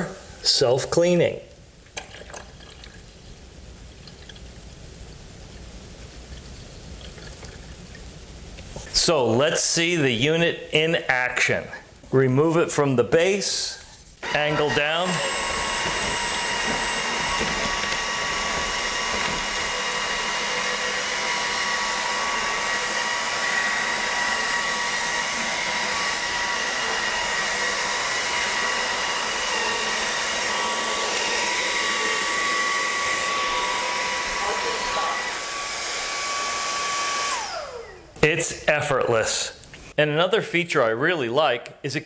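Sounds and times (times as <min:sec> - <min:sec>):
floor vacuum motor whine: 0:14.2 - 0:38.2.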